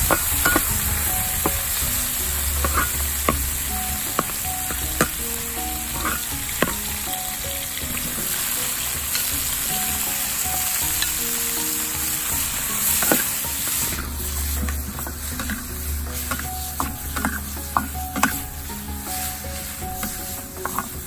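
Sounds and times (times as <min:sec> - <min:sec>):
metal spatula clacking on a pan: 0:00.0 - 0:01.6, 0:02.6 - 0:06.9, 0:12.8 - 0:18.5, 0:20.0 - 0:21.0
food sizzling in hot oil: 0:00.0 - 0:21.0.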